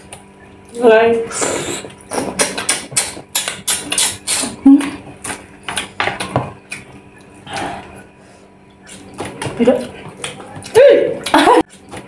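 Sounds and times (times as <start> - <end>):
wet chewing and lip smacking: 1.9 - 8.0, 8.7 - 12.0.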